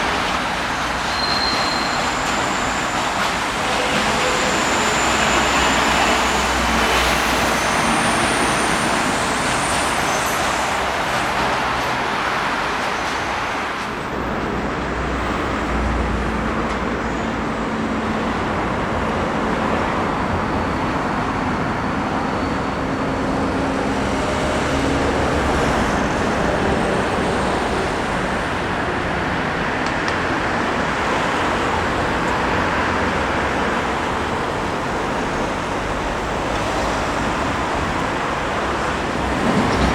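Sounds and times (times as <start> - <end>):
train wheels rolling on rails: 0.0 - 39.9.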